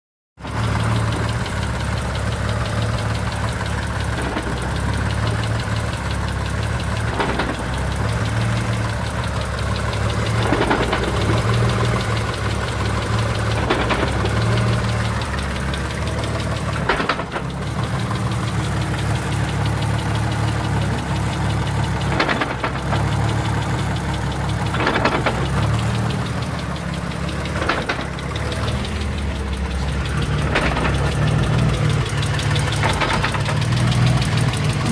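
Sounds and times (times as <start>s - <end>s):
car engine running: 0.4s - 34.9s
sharp clunk: 12.7s - 23.9s, 24.6s - 29.4s.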